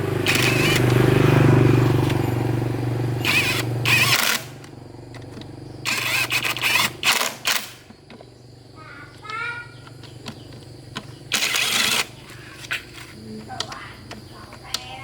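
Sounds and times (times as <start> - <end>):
motorcycle engine running: 0.0 - 7.1, 7.8 - 11.4.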